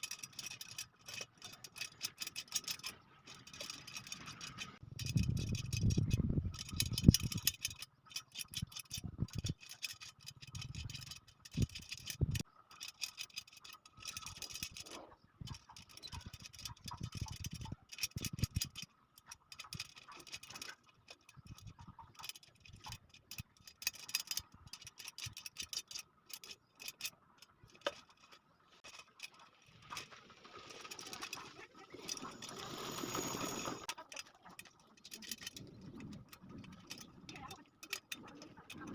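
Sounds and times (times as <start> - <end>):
metal spokes ticking on wheel rim: 0.0 - 27.1.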